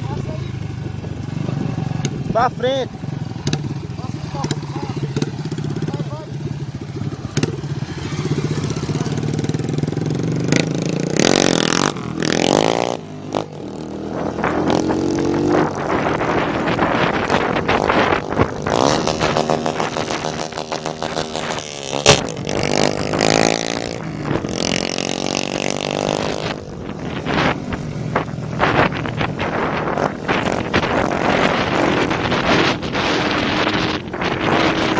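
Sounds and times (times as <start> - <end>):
motorcycles revving: 0.0 - 34.9
exhaust pops: 17.3 - 23.4.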